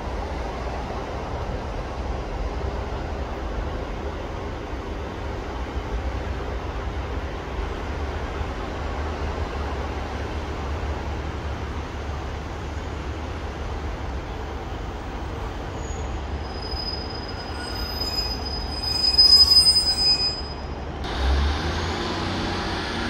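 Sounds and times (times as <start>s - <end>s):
train engine rumbling: 0.0s - 23.0s
high brake squeal: 15.7s - 20.8s.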